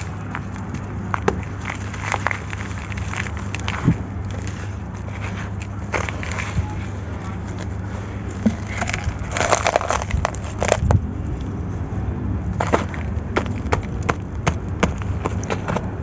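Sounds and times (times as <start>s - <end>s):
sand-cement chunks crunching: 0.0s - 11.1s, 12.6s - 16.0s
steady low hum: 0.0s - 16.0s.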